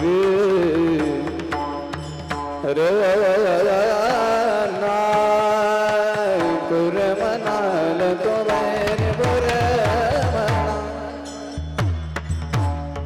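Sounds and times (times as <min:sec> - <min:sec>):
high voice singing devotional song: 0:02.6 - 0:11.6.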